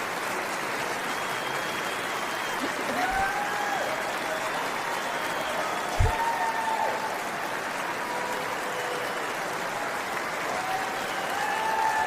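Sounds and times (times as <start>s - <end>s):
crowd applauding: 0.0s - 12.0s
short thump: 6.0s - 6.2s.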